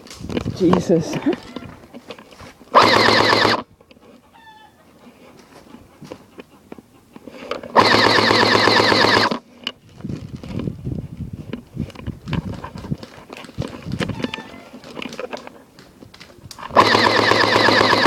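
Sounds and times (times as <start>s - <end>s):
airsoft gun full-auto bursts: 2.7s - 3.6s, 7.8s - 9.4s, 16.8s - 18.0s.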